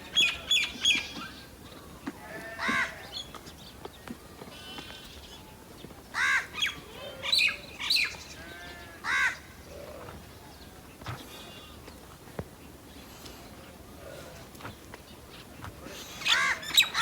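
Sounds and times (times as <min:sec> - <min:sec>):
crows cawing: 0:02.3 - 0:03.0, 0:06.2 - 0:06.6, 0:09.0 - 0:09.5.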